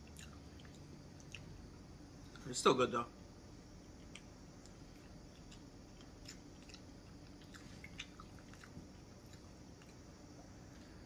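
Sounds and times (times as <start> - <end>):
soft chewing mouth clicks: 0.0 - 1.6, 4.0 - 11.0
low room hum: 0.0 - 11.0.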